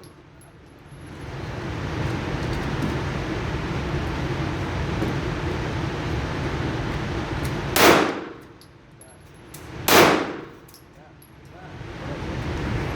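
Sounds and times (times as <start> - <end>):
pistol shots: 7.8 - 8.5, 9.9 - 10.6.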